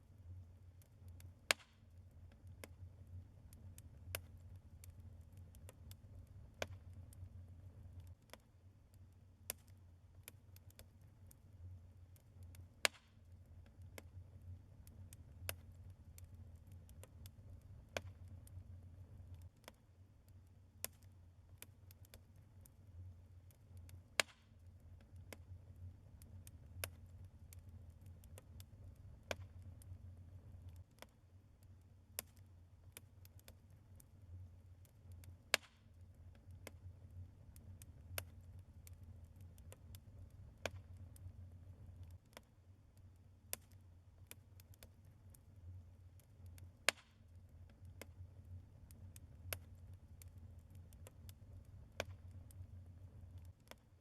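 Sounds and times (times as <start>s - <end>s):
logs crackling in fireplace: 0.0s - 54.0s
sharp pops of fire: 1.4s - 1.9s, 6.6s - 7.2s, 12.8s - 14.1s, 15.2s - 18.6s, 24.1s - 24.6s, 35.5s - 35.9s, 40.6s - 41.3s, 46.8s - 47.2s, 51.9s - 52.3s.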